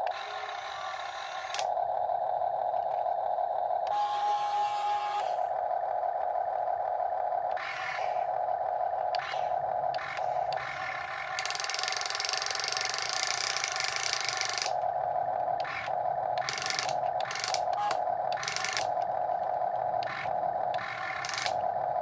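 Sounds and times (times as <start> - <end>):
small gear motors whining: 0.0 - 22.0
harsh gear grinding: 9.0 - 14.9, 15.5 - 22.0.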